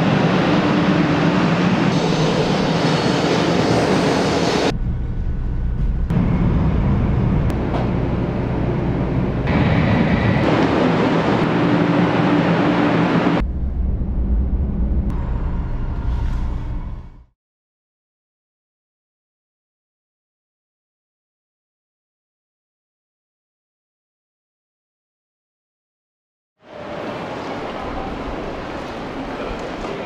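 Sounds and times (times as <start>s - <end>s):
deep rumble inside train carriage: 0.0s - 17.3s, 26.7s - 30.0s
high-speed train noise: 0.0s - 17.3s, 26.6s - 30.0s.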